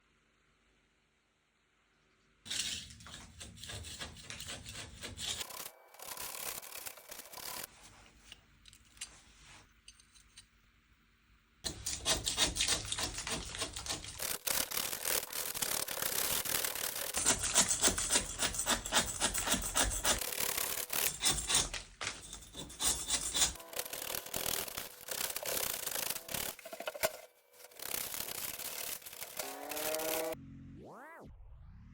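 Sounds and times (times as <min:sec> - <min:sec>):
rhythmic scraping on rough surface: 0:02.5 - 0:07.8, 0:11.7 - 0:30.4.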